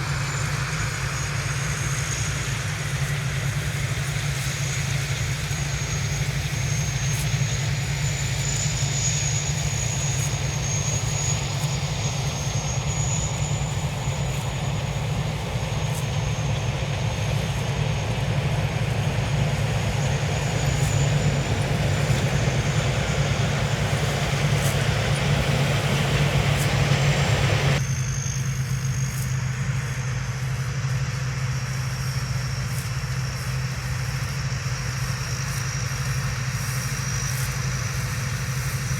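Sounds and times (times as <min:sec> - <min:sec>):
high wavering whine: 0:00.0 - 0:30.8
combine harvester engine running: 0:01.4 - 0:28.4.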